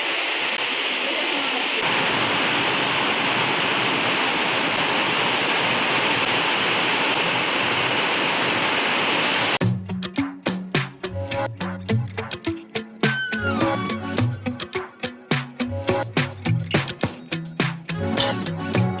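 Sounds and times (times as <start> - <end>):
running water rushing: 0.0 - 9.6
music with a beat: 9.6 - 19.0.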